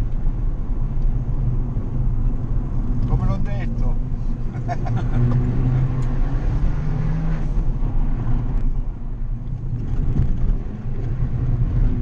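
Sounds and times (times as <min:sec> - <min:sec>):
car engine running hard: 0:00.0 - 0:12.0
tyre and road noise: 0:00.0 - 0:12.0.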